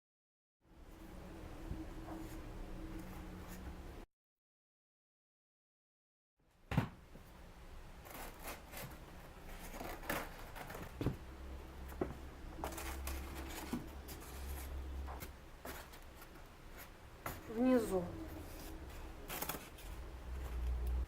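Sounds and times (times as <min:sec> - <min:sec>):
low hum: 0:00.7 - 0:04.0, 0:09.8 - 0:21.0.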